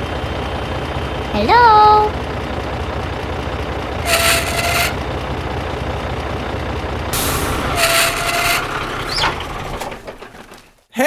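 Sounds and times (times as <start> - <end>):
small engine chugging: 2.2 - 5.6, 7.2 - 10.9
hiss with steady tone: 7.2 - 10.5.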